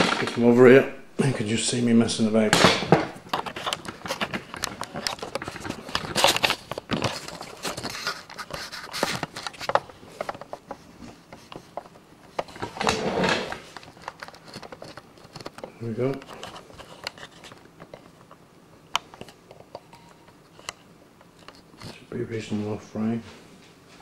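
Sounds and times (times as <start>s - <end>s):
cables rustling: 3.1s - 18.4s.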